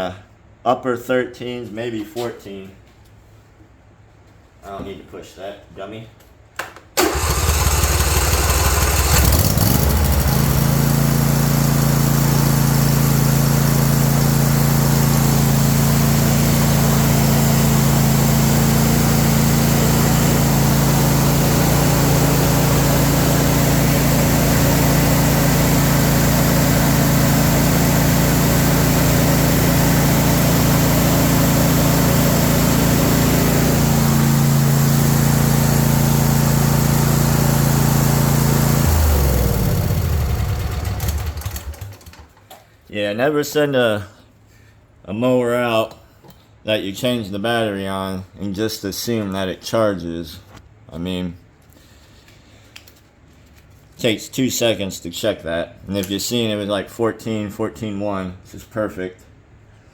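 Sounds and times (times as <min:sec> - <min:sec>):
lawn tractor engine starting: 0:07.0 - 0:42.5.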